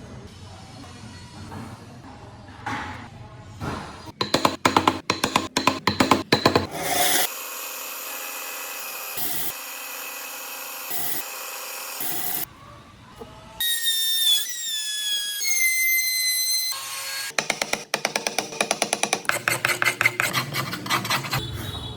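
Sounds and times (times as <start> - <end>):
power tool whine cutting wood: 6.7 - 12.5.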